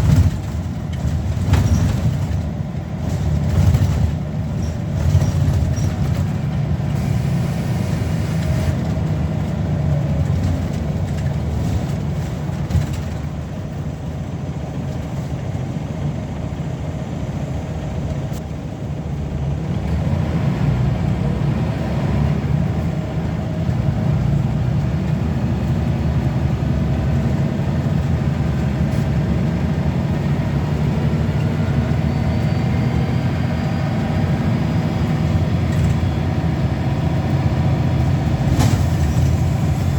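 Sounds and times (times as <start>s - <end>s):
bus diesel engine droning: 0.0s - 39.9s.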